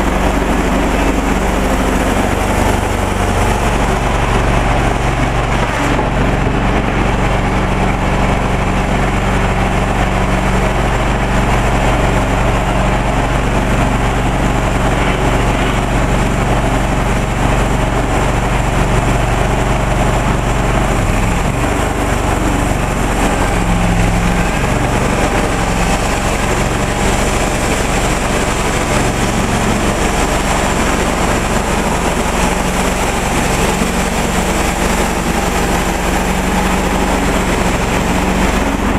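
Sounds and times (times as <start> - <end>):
sawmill engine running: 0.0 - 38.9
saw cutting log: 14.4 - 38.9.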